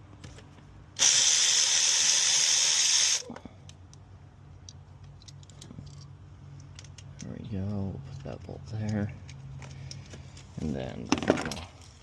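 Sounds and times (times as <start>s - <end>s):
loud steady hiss: 1.0s - 3.3s.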